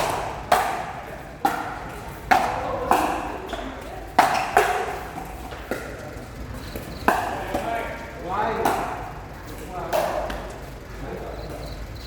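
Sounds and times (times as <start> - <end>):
paddles striking plastic ball: 0.0 - 7.7.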